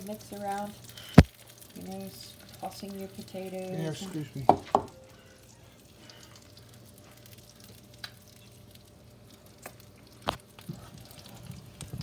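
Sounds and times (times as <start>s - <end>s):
wet stirring of potatoes: 0.0s - 12.0s.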